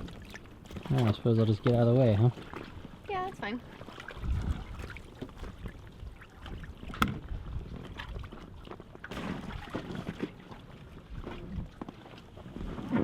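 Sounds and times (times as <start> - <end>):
water lapping around boat: 0.0 - 13.0
knocks against boat hull: 6.9 - 7.3.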